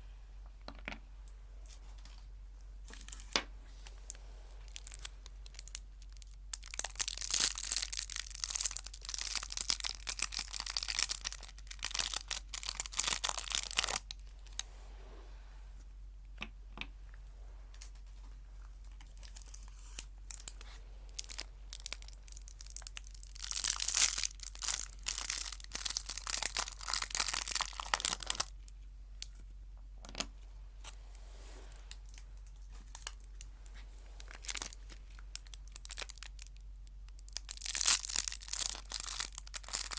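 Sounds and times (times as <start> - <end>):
small crackles of wrapper: 2.0 - 14.6, 17.7 - 29.4, 31.7 - 39.9
wrapper crinkling and tearing: 2.9 - 4.0, 4.6 - 14.6, 18.9 - 28.6, 31.7 - 33.5, 34.1 - 39.9.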